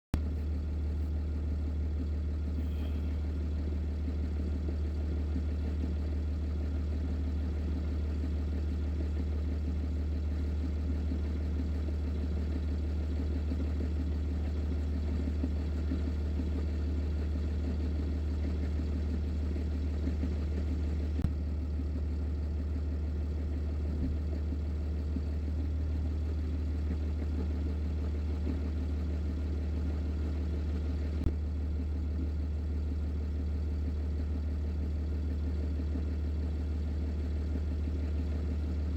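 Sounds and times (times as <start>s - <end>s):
diesel truck engine idling: 0.2s - 5.4s.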